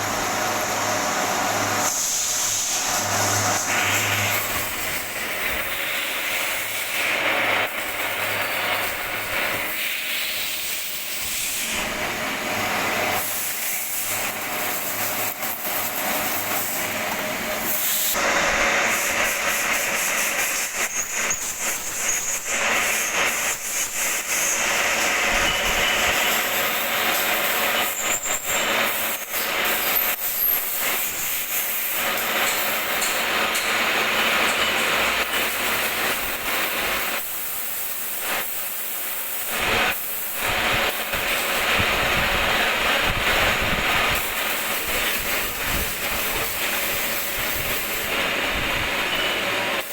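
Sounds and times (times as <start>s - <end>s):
metal lathe cutting hiss: 0.0s - 49.9s
high squeals of cutting tool: 19.7s - 33.2s, 49.0s - 49.9s.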